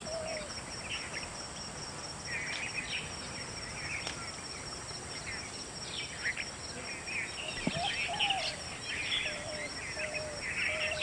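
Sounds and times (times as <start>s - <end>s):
background hiss: 0.0s - 11.0s
high-pitched insect trill: 0.0s - 11.0s
birds chirping: 2.3s - 11.0s.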